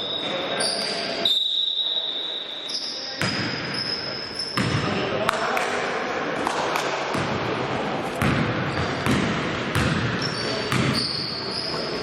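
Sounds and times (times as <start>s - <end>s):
shoe squeaks: 0.0s - 4.7s, 10.2s - 12.0s
murmur of voices: 0.0s - 12.0s
ball bouncing on wooden court: 3.2s - 3.7s, 4.5s - 4.9s, 8.2s - 11.9s.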